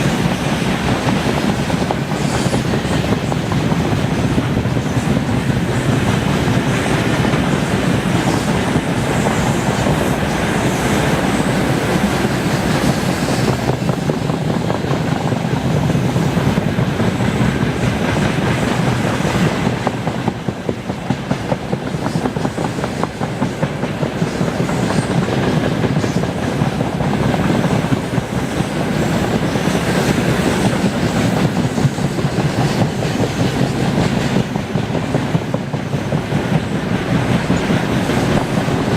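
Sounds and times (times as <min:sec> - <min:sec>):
freight train rolling on rails: 0:00.0 - 0:38.9.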